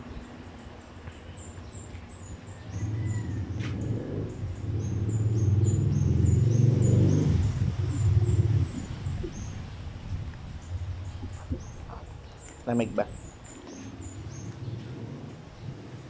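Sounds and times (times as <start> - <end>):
loud low drone: 2.7 - 16.0
small bird chirping: 10.6 - 16.0.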